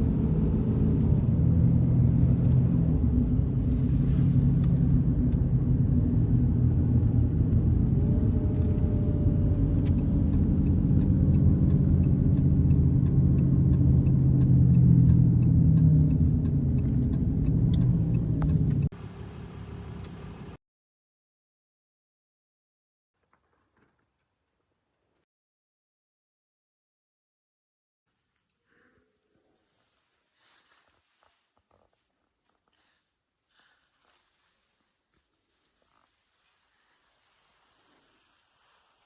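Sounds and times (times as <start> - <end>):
car engine and road noise: 0.0 - 20.6.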